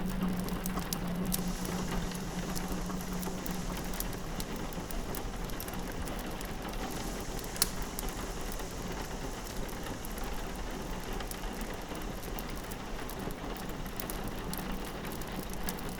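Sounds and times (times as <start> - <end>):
rain on a window: 0.0 - 15.9
wood fire crackling: 0.0 - 15.9.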